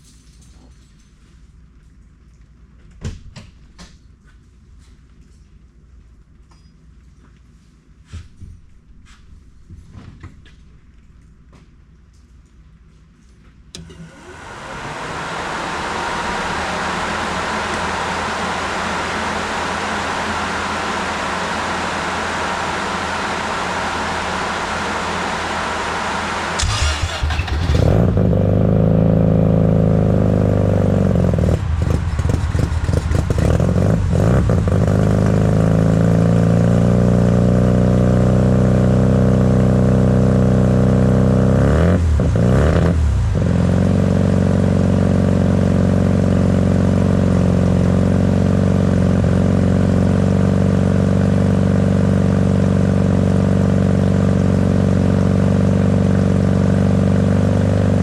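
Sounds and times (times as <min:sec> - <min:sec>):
rotary engine idling: 0:14.4 - 0:27.8.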